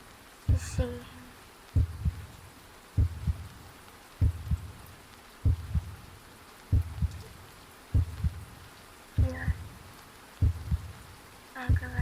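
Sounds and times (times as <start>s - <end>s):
faint steady rain: 0.0s - 12.0s
heartbeat thumps: 0.5s - 0.9s, 1.8s - 2.4s, 3.0s - 6.1s, 6.7s - 8.6s, 9.2s - 9.8s, 10.4s - 12.0s.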